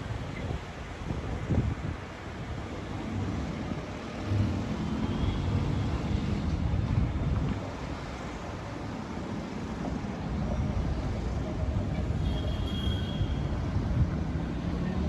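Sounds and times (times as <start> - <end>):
wind buffeting microphone: 0.0 - 3.9
city traffic rumbling: 0.0 - 15.0.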